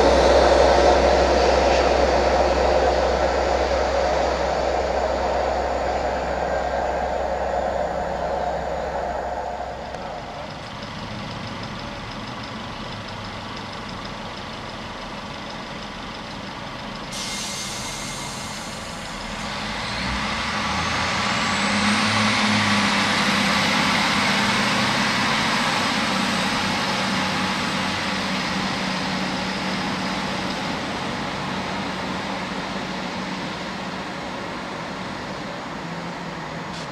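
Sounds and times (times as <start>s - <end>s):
rising whistle: 0.0s - 10.8s
train diesel engine running: 0.0s - 36.9s.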